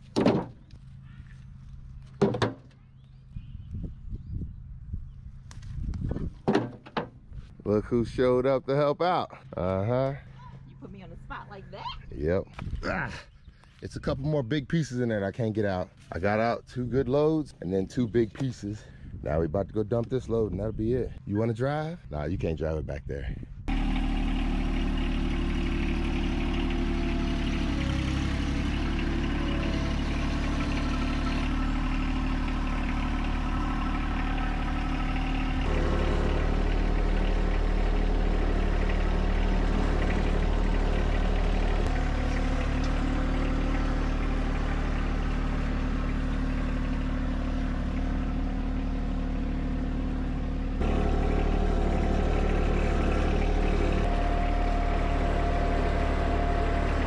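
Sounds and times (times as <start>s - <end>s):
tractor diesel engine running: 0.0s - 11.8s, 23.7s - 57.0s.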